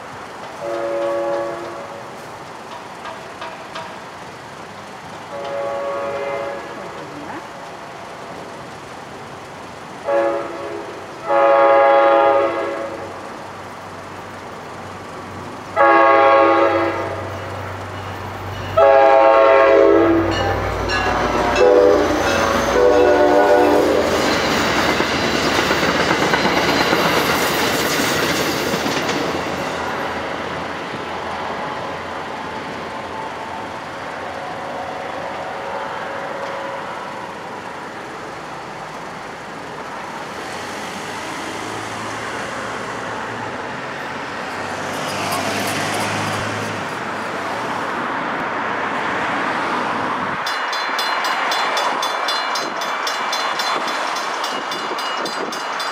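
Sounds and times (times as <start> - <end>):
train wheels clattering over rail joints: 0.0 - 5.6, 20.3 - 31.2, 44.6 - 46.9, 50.4 - 55.9
train horn blasts: 0.6 - 2.2, 5.3 - 6.8, 10.0 - 13.2, 15.8 - 17.6, 18.8 - 24.3.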